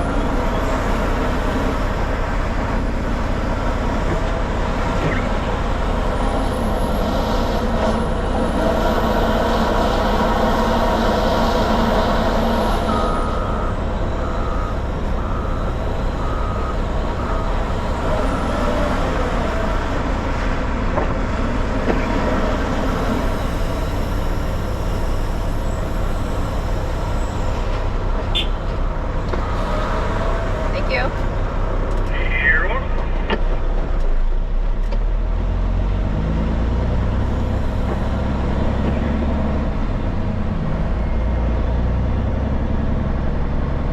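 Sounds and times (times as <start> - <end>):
truck diesel engine running: 0.0 - 43.9
backup alarm beeps: 12.8 - 19.0.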